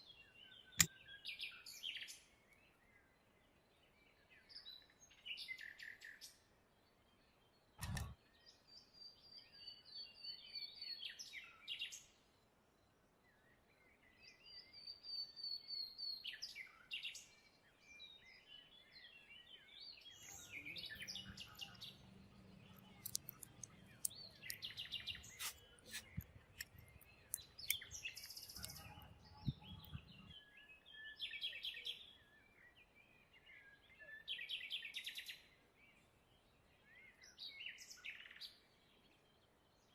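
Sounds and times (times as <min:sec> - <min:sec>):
small birds chirping: 0:00.0 - 0:39.9
sharp clicks and taps: 0:07.8 - 0:08.1, 0:20.3 - 0:30.2.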